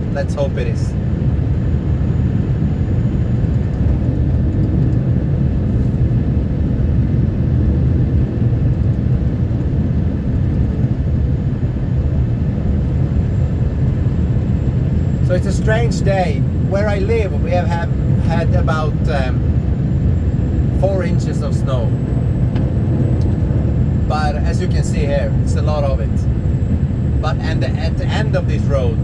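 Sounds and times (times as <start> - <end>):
truck engine rumble: 11.4 - 29.0
road noise: 12.2 - 29.0.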